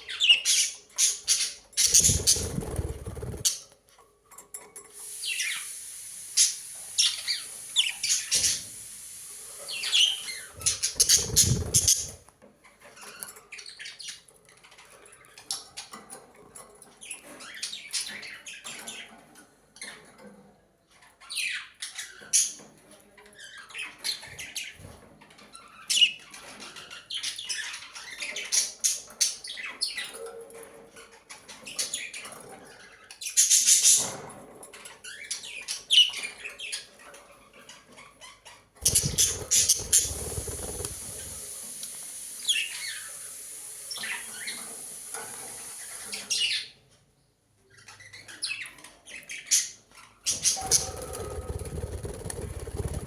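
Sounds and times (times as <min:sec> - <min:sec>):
budgerigars chirping: 0:00.1 - 0:03.4, 0:09.7 - 0:12.2, 0:38.8 - 0:41.4.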